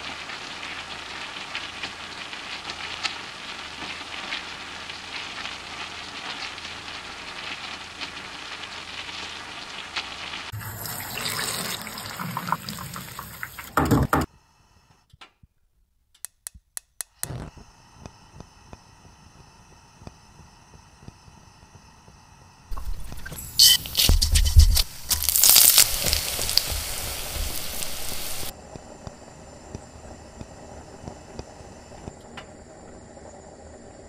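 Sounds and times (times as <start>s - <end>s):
meat sizzling while stirred: 0.0s - 10.6s, 22.7s - 28.6s
water pouring into pan: 0.0s - 13.8s, 22.7s - 28.5s.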